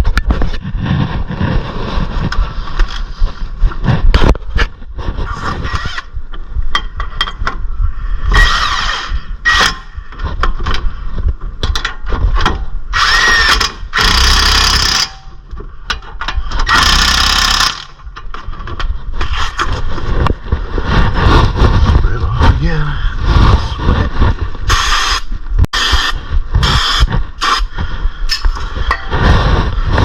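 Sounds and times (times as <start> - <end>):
handheld power tool bursts: 12.9 - 15.3, 16.6 - 18.0, 24.7 - 27.7.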